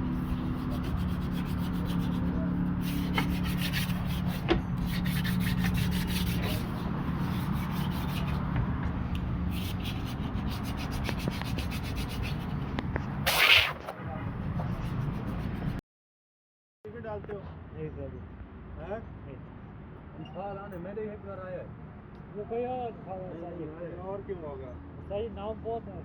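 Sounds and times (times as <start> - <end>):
scraping strokes on hard surface: 0.0 - 8.5, 9.5 - 13.9
low machine hum: 0.0 - 12.8
loud hiss burst: 13.3 - 13.8.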